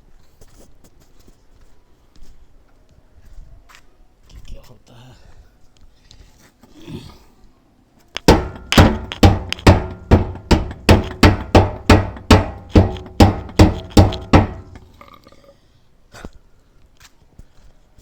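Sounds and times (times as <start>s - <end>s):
hammer rapping steel fuel tank: 8.3s - 15.0s.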